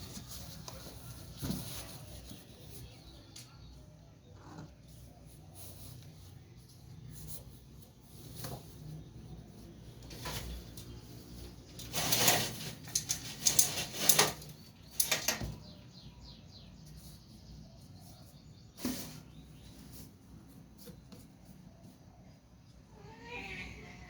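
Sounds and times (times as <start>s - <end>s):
rustling scuffling noises: 0.0s - 3.4s.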